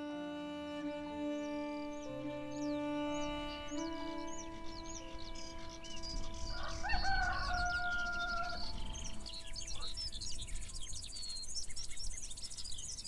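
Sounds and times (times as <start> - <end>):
songbirds chirping: 0.0 - 13.0
rooster crowing: 6.3 - 9.1.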